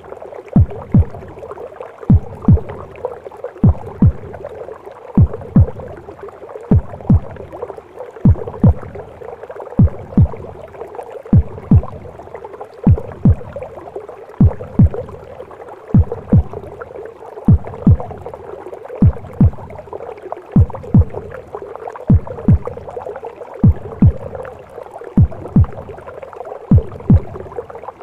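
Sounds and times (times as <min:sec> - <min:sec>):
muffled watery whooshing: 0:00.0 - 0:28.0
heartbeat thumps: 0:00.6 - 0:01.4, 0:02.0 - 0:03.0, 0:03.6 - 0:04.5, 0:05.2 - 0:06.0, 0:06.7 - 0:07.6, 0:08.2 - 0:09.2, 0:09.8 - 0:10.7, 0:11.3 - 0:12.2, 0:12.8 - 0:13.7, 0:14.4 - 0:15.3, 0:15.9 - 0:16.8, 0:17.5 - 0:18.4, 0:19.0 - 0:19.9, 0:20.5 - 0:23.0, 0:23.6 - 0:24.5, 0:25.2 - 0:26.0, 0:26.7 - 0:27.6.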